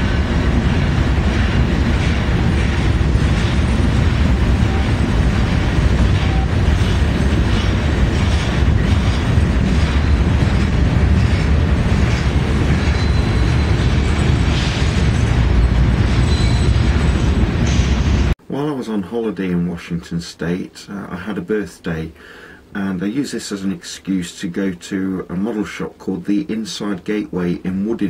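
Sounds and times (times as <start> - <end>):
wind buffeting microphone: 0.0 - 18.3
freight train rumbling past: 0.0 - 18.4.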